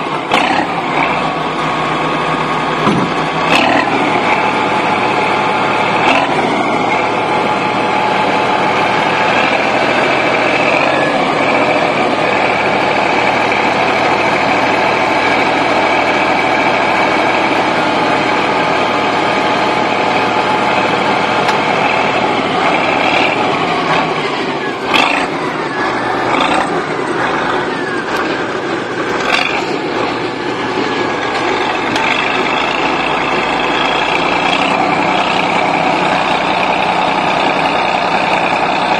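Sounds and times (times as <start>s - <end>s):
bulldozer diesel engine running: 0.0s - 38.9s
sharp knocks: 2.8s - 3.2s.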